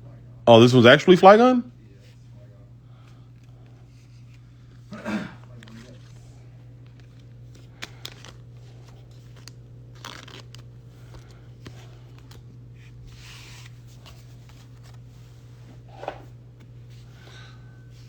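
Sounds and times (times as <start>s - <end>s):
low electrical hum: 0.0s - 18.0s
trading cards being flipped: 6.8s - 15.0s.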